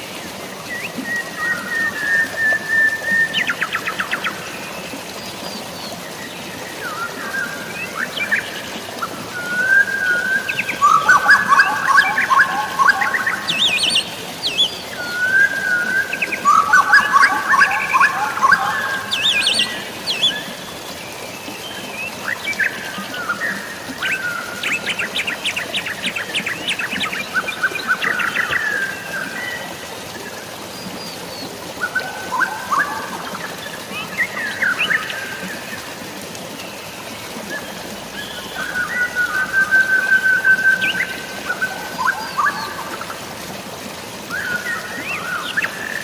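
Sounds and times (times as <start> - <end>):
rain and running water: 0.0 - 46.0
birds singing and chirping: 9.3 - 20.6, 31.8 - 35.4.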